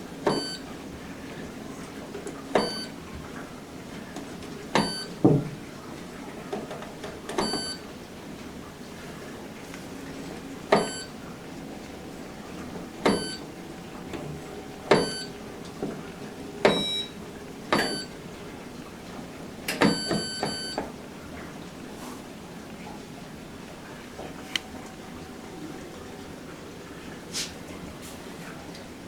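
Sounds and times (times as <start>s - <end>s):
washing machine control panel beep: 0.2s - 0.8s, 2.5s - 3.1s, 4.7s - 5.5s, 7.2s - 8.0s, 10.4s - 18.4s, 19.7s - 20.9s.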